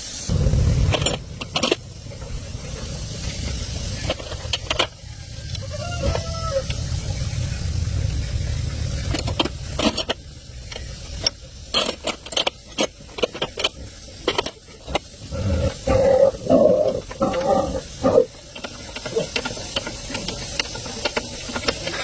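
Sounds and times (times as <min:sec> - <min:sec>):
low rumble: 0:00.2 - 0:22.0
rough rasping sound: 0:11.2 - 0:22.0.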